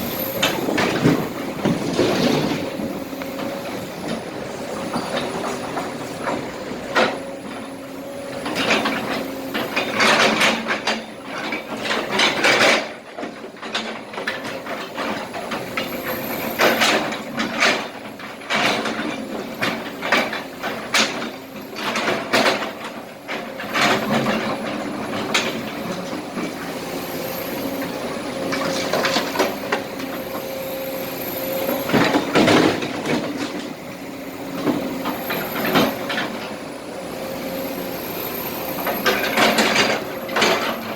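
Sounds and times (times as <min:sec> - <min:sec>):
excavator diesel engine running: 0:00.0 - 0:40.9
asphalt and rocks clattering: 0:00.4 - 0:07.2.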